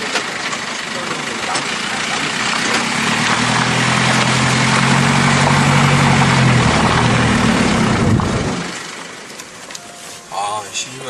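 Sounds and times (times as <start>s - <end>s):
car engine humming: 0.0s - 11.0s
road and wind noise: 0.0s - 11.0s.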